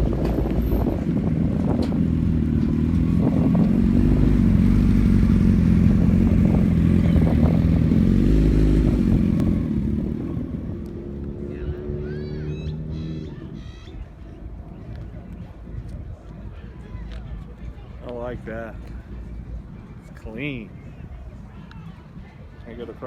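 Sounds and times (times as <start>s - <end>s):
vehicle motor humming: 0.0s - 12.2s.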